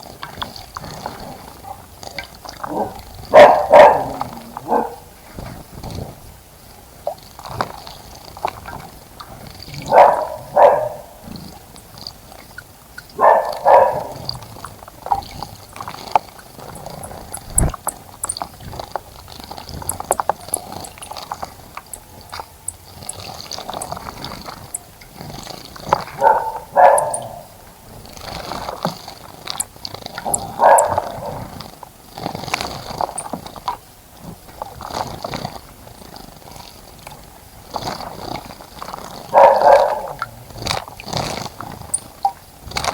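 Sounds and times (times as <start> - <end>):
birds splashing in water: 7.0 - 42.9
high bird chirps: 19.8 - 21.2, 26.4 - 27.5.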